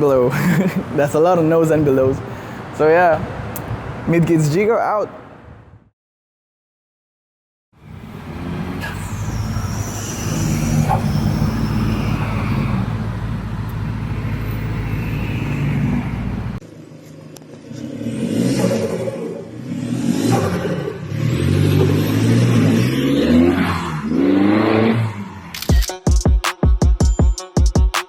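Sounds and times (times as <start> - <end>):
diesel car engine drone: 7.8 - 25.7
engine revving: 7.8 - 25.7.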